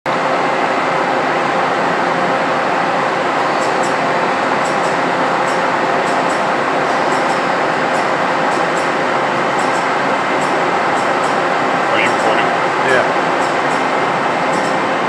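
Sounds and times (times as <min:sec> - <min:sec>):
faint hum: 0:01.9 - 0:15.0
milling machine cutting metal: 0:03.3 - 0:15.0.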